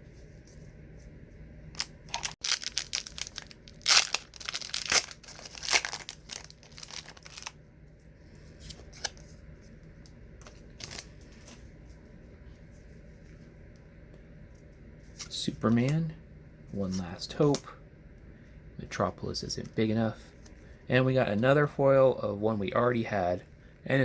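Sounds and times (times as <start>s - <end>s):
wax paper wrapper ripping: 1.8s - 7.6s.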